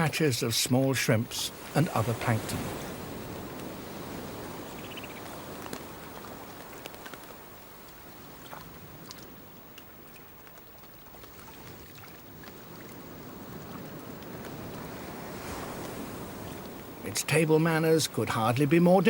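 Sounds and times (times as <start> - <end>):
sea water lapping: 0.0 - 19.0
small water drips: 3.1 - 15.2.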